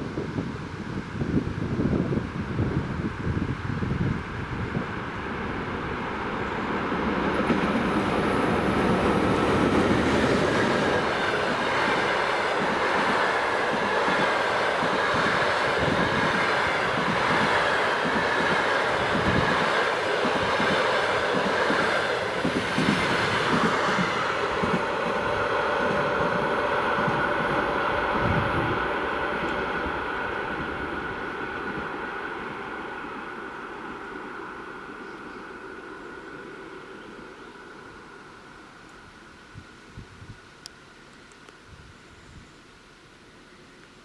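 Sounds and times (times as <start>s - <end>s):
train wheels clattering on rails: 6.9s - 30.8s.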